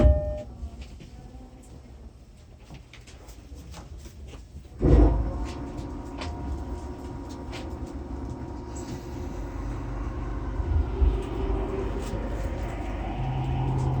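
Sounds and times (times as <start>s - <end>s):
heavy low thud: 0.0s - 0.6s
train running rumble: 4.8s - 14.0s.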